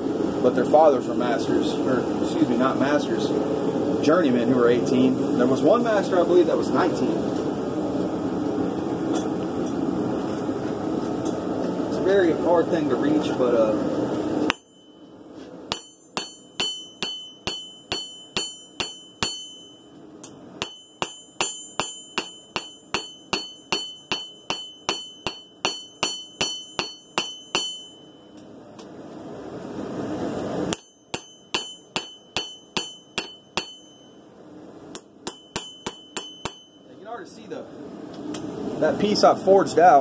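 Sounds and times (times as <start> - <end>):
hammer blows on anvil: 14.5 - 28.4, 30.7 - 34.3, 34.9 - 37.0.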